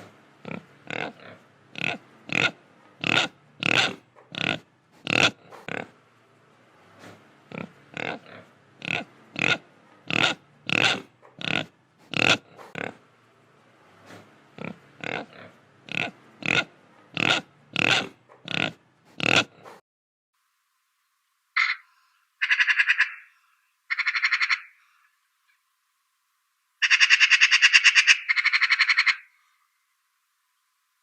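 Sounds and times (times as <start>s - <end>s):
pig grunting: 0.0s - 6.0s, 6.8s - 13.1s, 13.9s - 19.8s.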